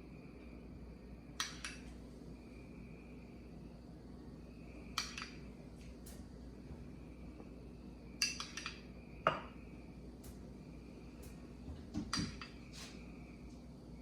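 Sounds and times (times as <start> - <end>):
spoon clinking against glass jars: 8.2 - 9.4.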